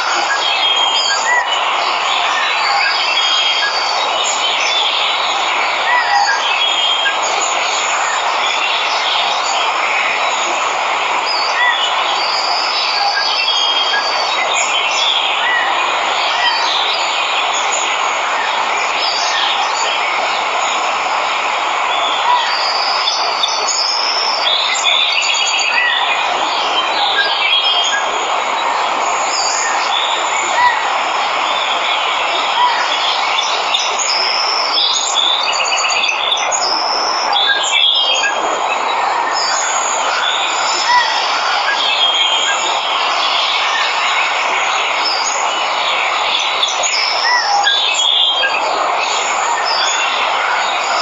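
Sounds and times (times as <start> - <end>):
waterfall rushing: 0.0 - 51.0
birds chirping: 21.7 - 51.0.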